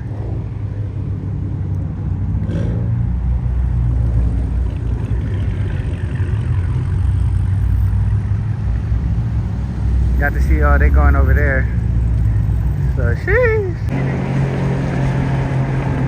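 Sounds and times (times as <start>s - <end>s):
car engines rumbling: 0.0s - 16.0s
car engine revving: 2.4s - 12.7s, 13.8s - 16.0s.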